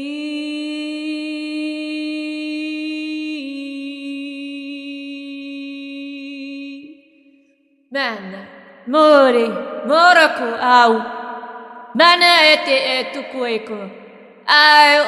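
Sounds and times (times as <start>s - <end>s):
woman chanting sustained tone: 8.0s - 15.0s.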